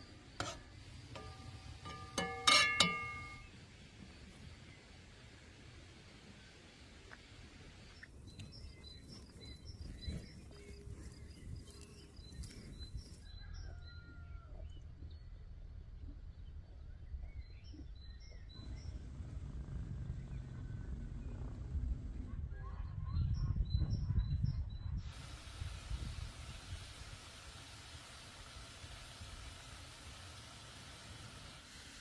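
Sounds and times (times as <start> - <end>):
outdoor background rumble: 7.6 - 31.8
small birds chirping: 7.7 - 19.3.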